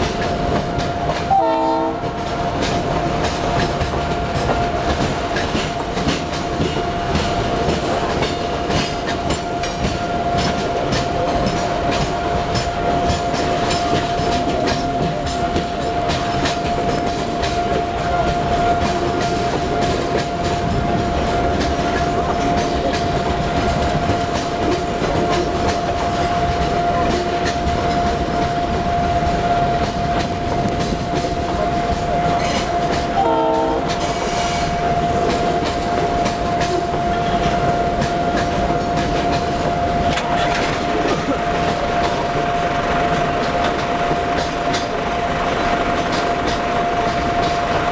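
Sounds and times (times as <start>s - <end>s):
train horn blast: 0.0s - 2.2s, 9.4s - 42.1s
train rumble: 0.0s - 47.9s
train wheels clattering: 0.0s - 47.9s.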